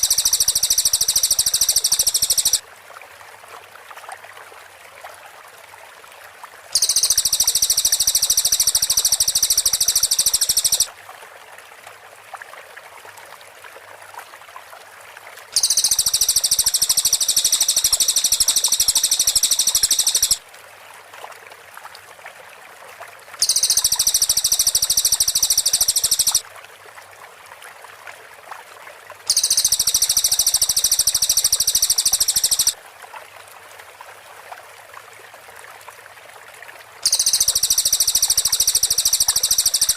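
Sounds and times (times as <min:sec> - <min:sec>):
bird trilling song: 0:00.0 - 0:02.6, 0:06.8 - 0:10.9, 0:15.6 - 0:20.4, 0:23.4 - 0:26.4, 0:29.3 - 0:32.8, 0:37.0 - 0:39.9
faint steady hiss: 0:00.0 - 0:02.8, 0:05.0 - 0:11.2, 0:15.4 - 0:21.4, 0:22.5 - 0:26.5, 0:29.2 - 0:33.0, 0:36.8 - 0:39.9.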